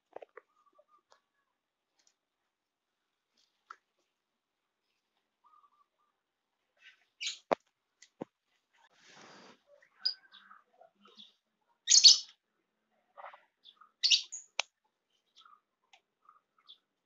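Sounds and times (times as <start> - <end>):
small birds chirping: 0.1 - 2.4, 3.0 - 8.2, 9.1 - 17.0.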